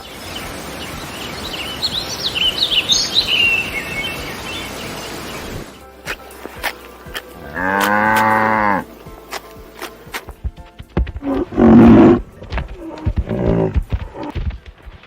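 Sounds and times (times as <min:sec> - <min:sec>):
cow mooing: 0:07.4 - 0:08.9, 0:11.3 - 0:12.2.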